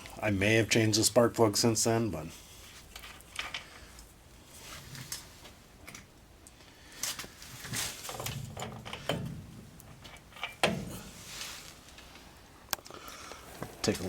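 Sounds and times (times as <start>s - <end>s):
metal parts and tools clattering: 2.9s - 3.8s.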